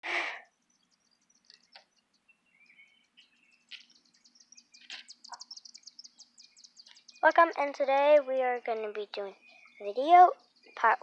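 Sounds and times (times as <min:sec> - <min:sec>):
birds chirping: 0:00.0 - 0:11.0
bird warbling call: 0:02.5 - 0:07.7, 0:09.3 - 0:11.0.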